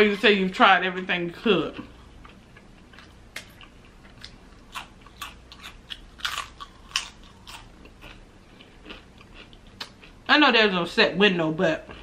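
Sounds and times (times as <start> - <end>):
tortilla chips crunching: 3.0 - 10.0.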